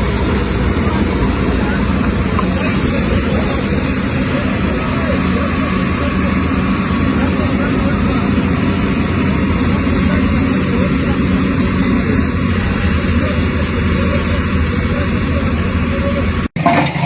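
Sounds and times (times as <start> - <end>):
heavy machine engine roaring: 0.0 - 17.0.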